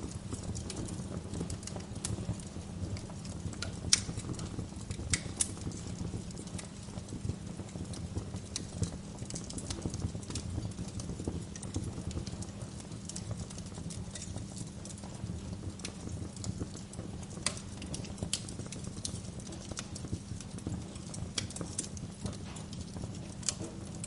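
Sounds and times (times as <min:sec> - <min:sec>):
sharp pops of fire: 0:00.0 - 0:24.0
wood fire crackling: 0:00.0 - 0:24.0.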